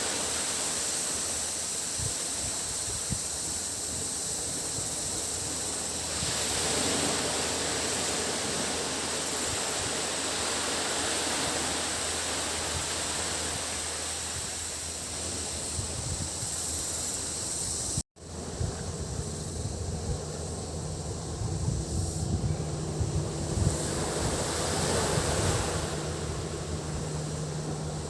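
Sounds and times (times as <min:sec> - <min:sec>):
sea waves washing onto beach: 0:00.0 - 0:19.0, 0:22.7 - 0:28.0
cicadas droning: 0:00.0 - 0:28.0.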